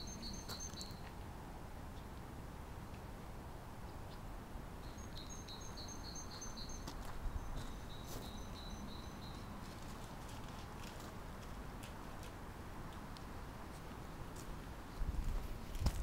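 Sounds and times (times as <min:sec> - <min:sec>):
bird chirping: 0:00.0 - 0:01.1, 0:04.8 - 0:09.7.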